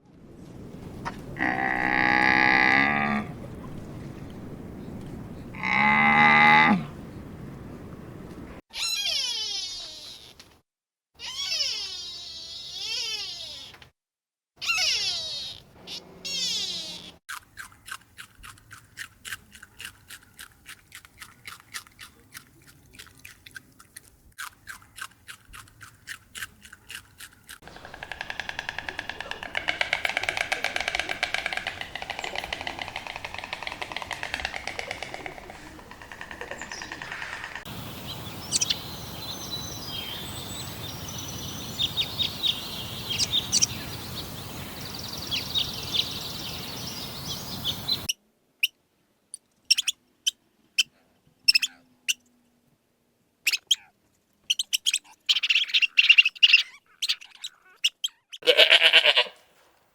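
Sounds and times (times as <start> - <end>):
birds chirping: 26.8 - 48.1
background hiss: 27.7 - 48.1.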